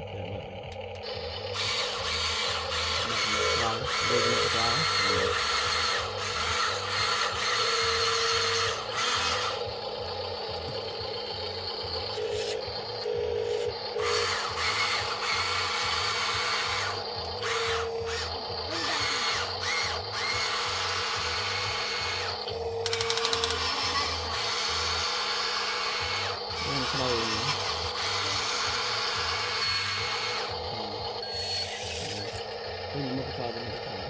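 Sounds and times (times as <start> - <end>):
toy motors whirring: 0.5 - 34.0
rapid clicking: 22.3 - 23.8.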